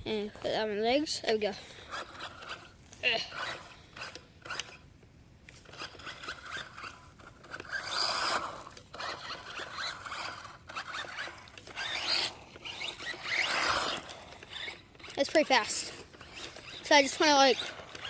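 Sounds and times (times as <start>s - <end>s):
toy truck motor whirring: 0.1s - 4.9s, 5.5s - 18.0s.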